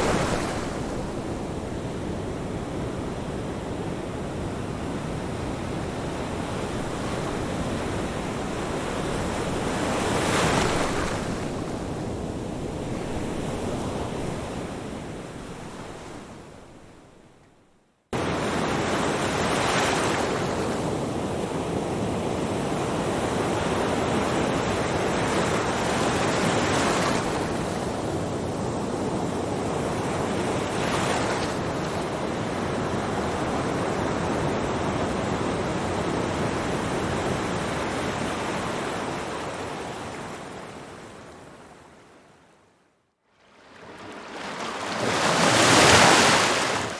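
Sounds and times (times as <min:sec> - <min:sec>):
ocean surf breaking: 0:43.6 - 0:46.9.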